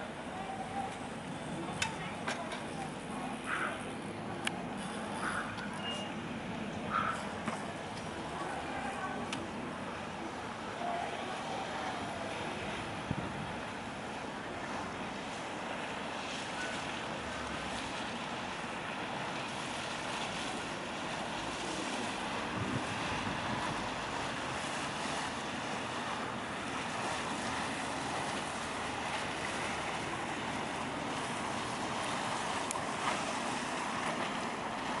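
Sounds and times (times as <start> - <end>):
river water washing against quay: 0.0 - 35.0
wind buffeting microphone: 12.8 - 13.8, 22.4 - 24.1.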